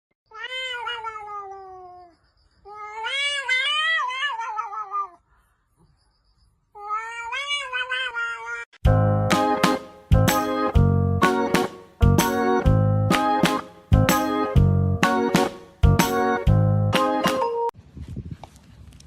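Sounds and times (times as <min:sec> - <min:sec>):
cat yowling: 0:00.3 - 0:05.2, 0:06.8 - 0:08.8.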